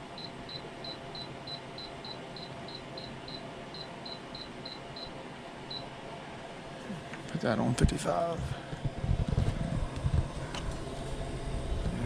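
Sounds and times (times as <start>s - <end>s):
steady low hum: 0.0s - 12.0s
electronic device beeping: 0.2s - 5.9s.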